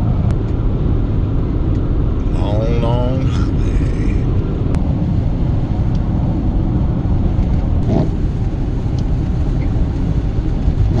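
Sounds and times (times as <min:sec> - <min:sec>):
road and engine noise: 0:00.0 - 0:11.0.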